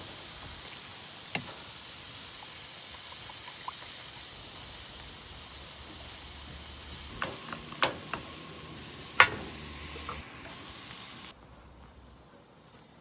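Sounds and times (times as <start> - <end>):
food sizzling in a frying pan: 0.0 - 11.3
sharp clicks or knocks: 7.1 - 10.7.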